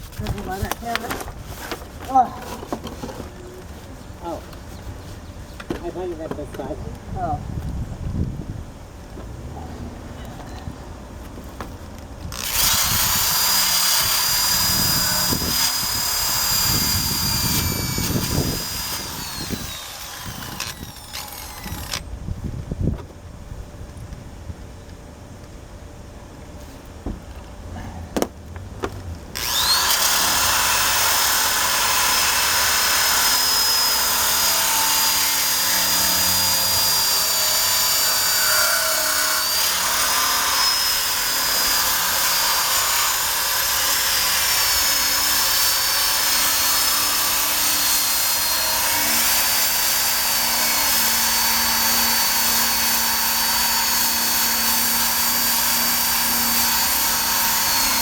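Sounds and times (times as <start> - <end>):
drill wire brush on steel: 12.4 - 22.0, 29.4 - 58.0.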